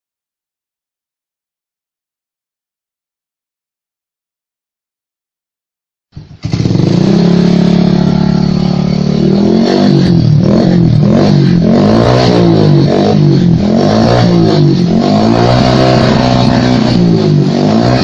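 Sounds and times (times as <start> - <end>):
motorcycle engine revving: 6.2 - 18.0.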